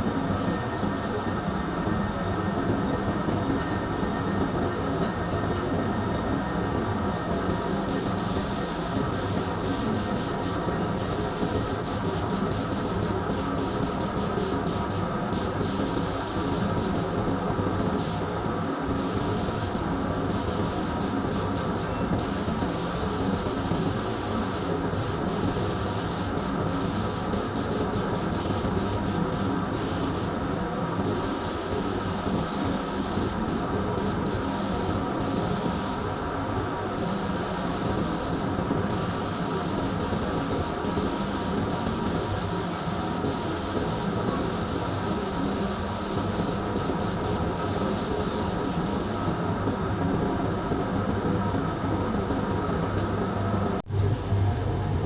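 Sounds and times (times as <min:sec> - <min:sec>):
machine drone: 0:46.5 - 0:55.0.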